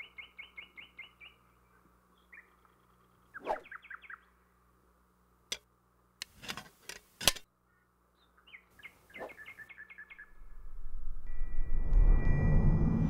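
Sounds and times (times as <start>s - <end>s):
songbird chirping: 0.0s - 4.8s, 7.5s - 12.0s.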